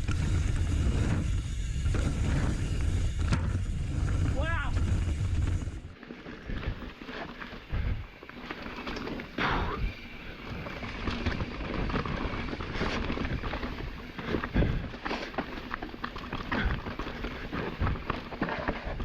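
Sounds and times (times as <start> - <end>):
bike knocking and rattling: 0.0 - 19.0
bike tyres rumbling over dirt: 0.0 - 19.0
wind on microphone: 7.7 - 8.1.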